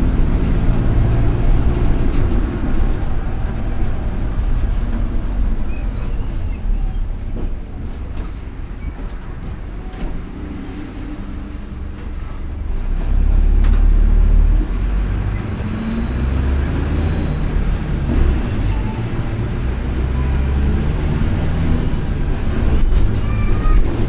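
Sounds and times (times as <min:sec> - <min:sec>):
bus diesel engine rumbling: 0:00.0 - 0:24.0.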